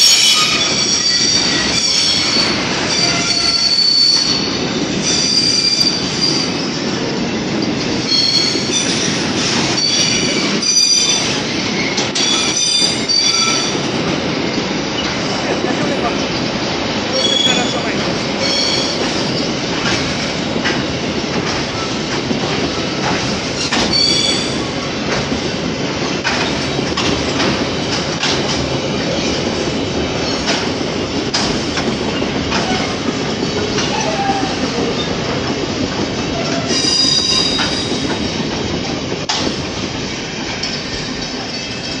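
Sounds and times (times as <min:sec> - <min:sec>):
high metallic squeals: 0:00.0 - 0:04.5
steel wheels rumbling on rail: 0:00.0 - 0:42.0
wheels clicking over rail joints: 0:17.2 - 0:39.7.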